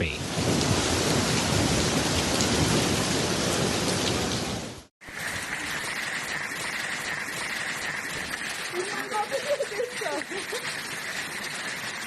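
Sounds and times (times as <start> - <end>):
hail clattering: 5.1 - 12.0.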